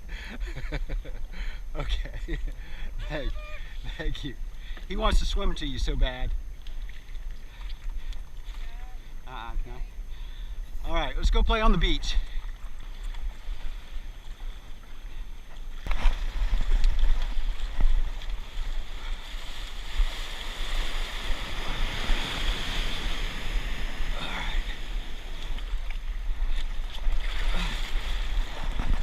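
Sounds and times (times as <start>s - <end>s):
ocean surf washing: 15.9s - 29.0s.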